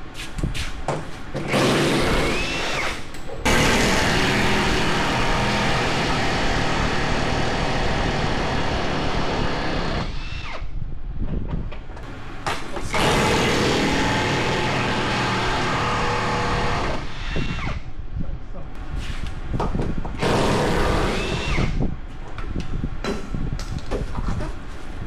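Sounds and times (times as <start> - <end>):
power tool running: 1.2 - 10.5, 12.0 - 17.7, 18.8 - 21.9.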